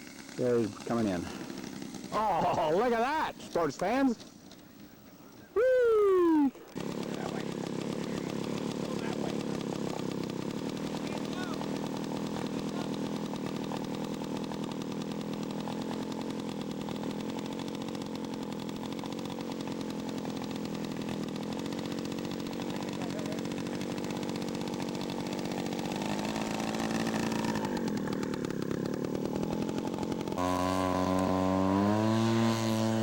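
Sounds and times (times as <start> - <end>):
model airplane engine in flight: 0.0 - 33.0.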